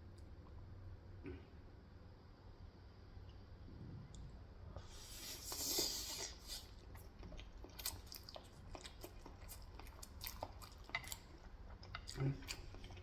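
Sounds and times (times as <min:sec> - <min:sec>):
person chewing and crunching: 0:05.2 - 0:13.0.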